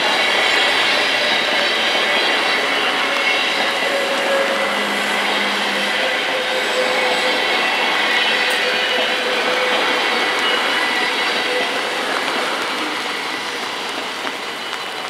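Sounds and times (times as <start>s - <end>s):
train wheels rushing on rails: 0.0s - 15.0s.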